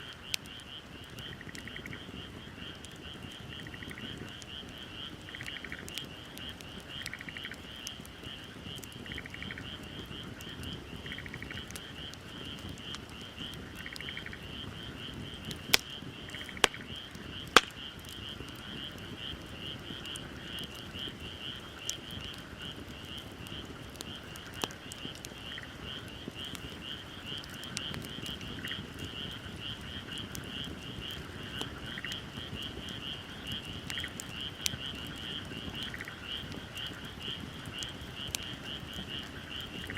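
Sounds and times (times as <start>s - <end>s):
fire pops: 0.0s - 39.9s
wood fire crackling: 0.0s - 39.9s
frogs calling in chorus: 6.9s - 8.5s.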